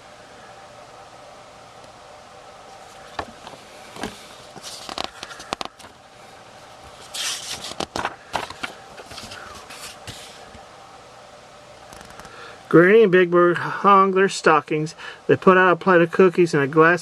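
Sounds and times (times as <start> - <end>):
faint hum: 0.0 - 17.0
book pages rustling: 2.7 - 6.0, 6.6 - 10.6.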